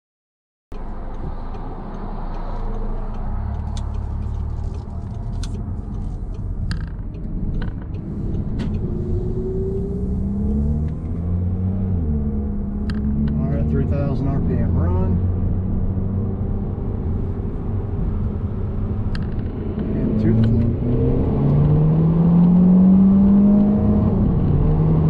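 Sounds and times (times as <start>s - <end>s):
sharp clicks: 0.7s - 9.9s
car engine running in cabin: 0.7s - 25.0s
road noise: 0.7s - 25.0s.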